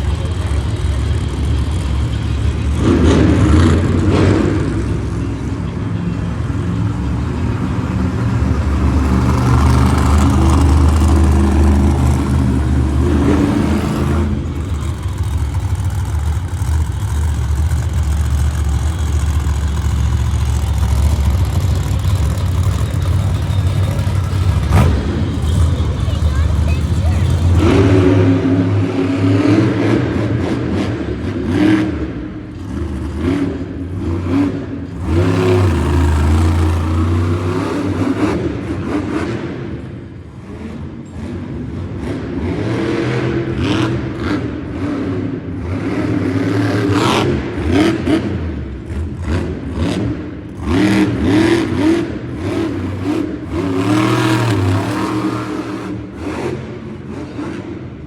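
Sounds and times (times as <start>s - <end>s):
truck engine revving: 0.0s - 58.0s.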